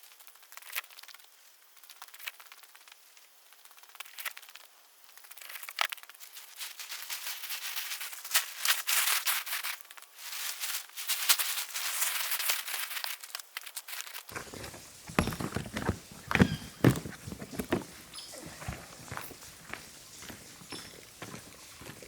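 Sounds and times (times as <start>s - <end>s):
camping gear crinkling and rustling: 0.0s - 22.0s
heavy thumps: 14.3s - 19.2s.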